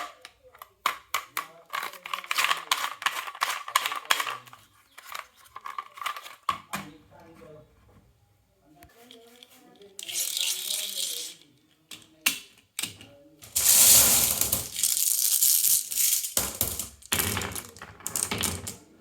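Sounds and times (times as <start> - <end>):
rattling rush of marbles: 13.4 - 18.7
marbles clicking on track: 13.4 - 18.8
marbles rolling on wooden track: 13.4 - 18.9.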